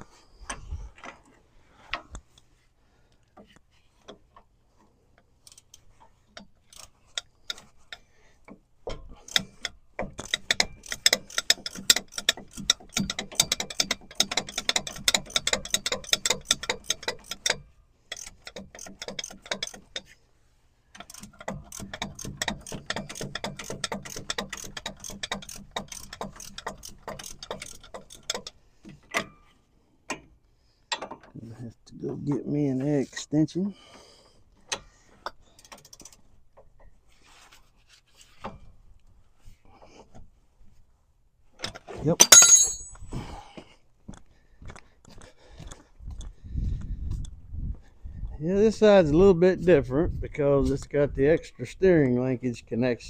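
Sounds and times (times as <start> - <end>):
hand ratchet clicking: 5.4 - 8.0, 8.9 - 20.1, 20.9 - 29.4.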